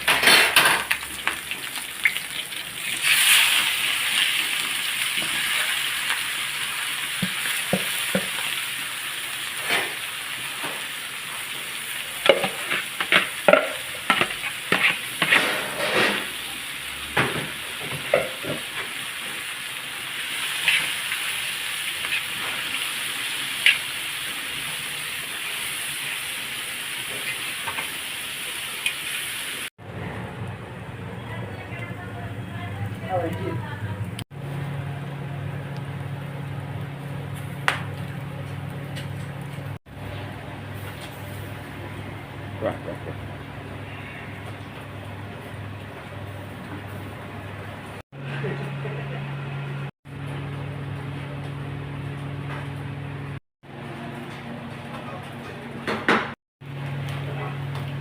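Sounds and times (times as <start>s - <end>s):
food sizzling in hot fat: 0.0s - 29.8s.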